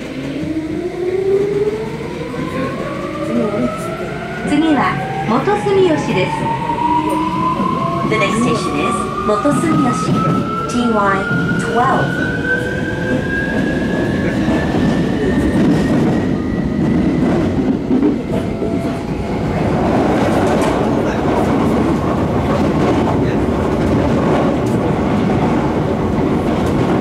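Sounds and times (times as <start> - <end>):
train running rumble: 13.2 - 27.0.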